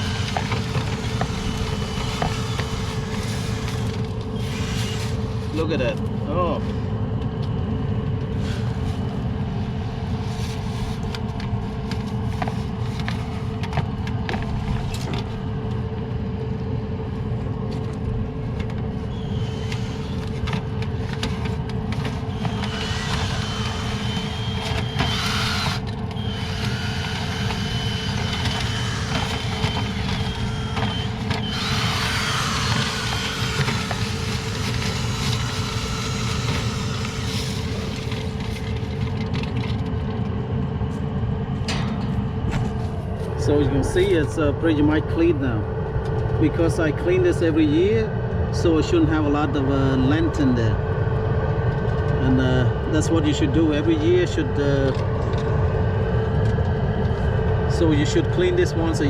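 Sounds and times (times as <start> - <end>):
dryer exhaust air rushing: 0.0 - 7.1, 8.2 - 39.3.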